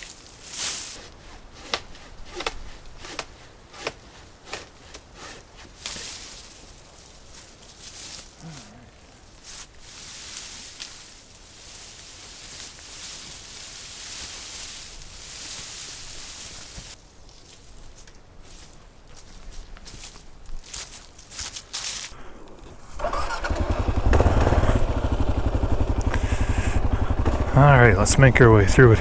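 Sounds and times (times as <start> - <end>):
twigs and branches snapping: 0.0 - 22.2
leaves and branches rustling: 0.0 - 26.1.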